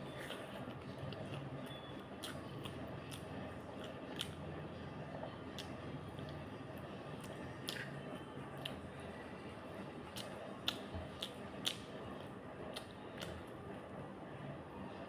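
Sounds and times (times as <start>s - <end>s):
wet mouth clicks while chewing: 0.1s - 4.4s, 7.2s - 8.0s, 10.1s - 13.5s.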